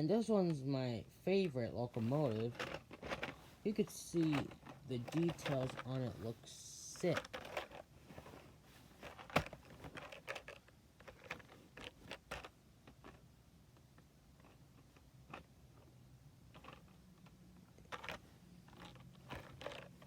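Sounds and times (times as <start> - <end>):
plastic model clicks and rattles: 2.2 - 6.0, 7.0 - 7.8, 9.0 - 13.2, 13.8 - 15.9, 16.5 - 20.0.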